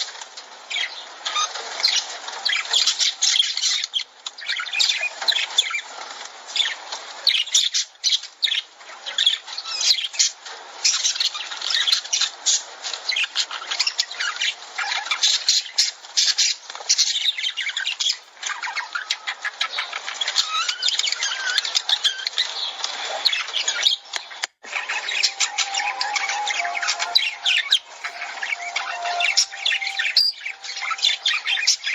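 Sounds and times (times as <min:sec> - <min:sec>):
lovebirds chattering: 0:10.9 - 0:31.9.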